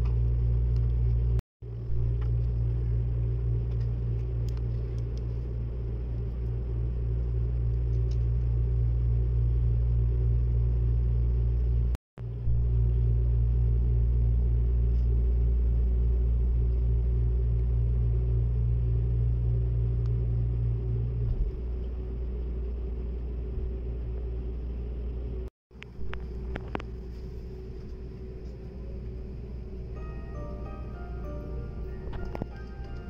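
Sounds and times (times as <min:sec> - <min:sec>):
faint constant hum: 0:00.0 - 0:33.0.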